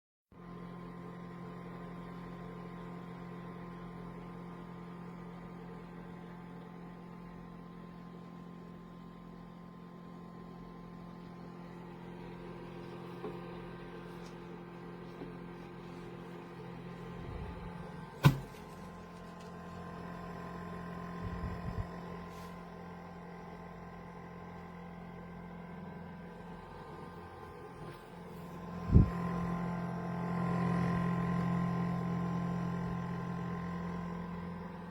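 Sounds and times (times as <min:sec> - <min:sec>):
electrical hum: 0:09.4 - 0:34.9.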